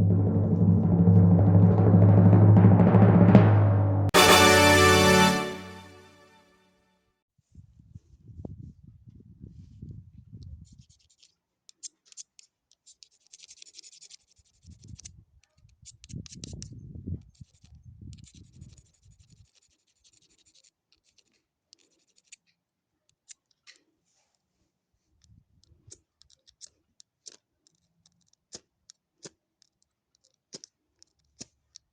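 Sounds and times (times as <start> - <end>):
muffled bumps and rumbling: 0.0 - 4.1.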